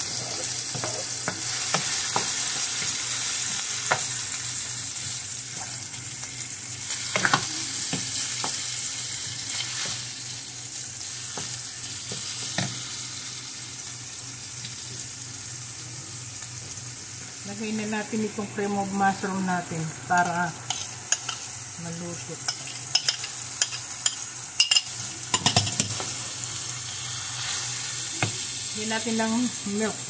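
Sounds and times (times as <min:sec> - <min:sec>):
meat and onion sizzling in pan: 0:00.0 - 0:30.0.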